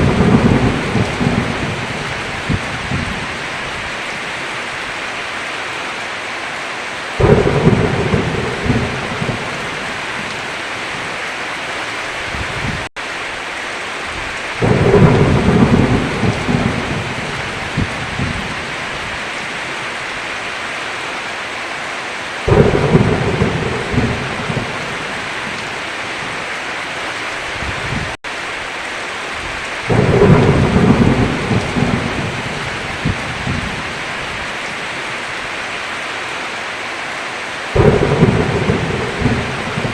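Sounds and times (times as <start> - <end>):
thunder rolling: 0.0 - 3.4, 7.2 - 10.5, 14.5 - 19.1, 22.5 - 25.7, 29.9 - 34.4, 37.8 - 39.9
heavy rain: 0.0 - 39.9.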